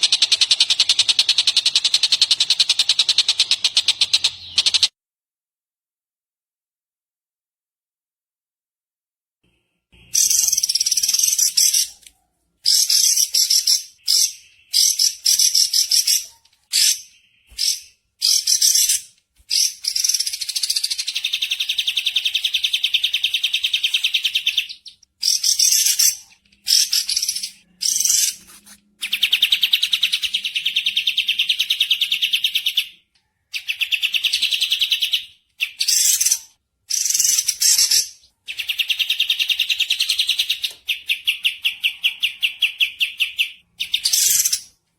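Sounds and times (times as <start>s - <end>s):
songbird chattering trills: 0.0s - 4.9s, 12.7s - 32.3s.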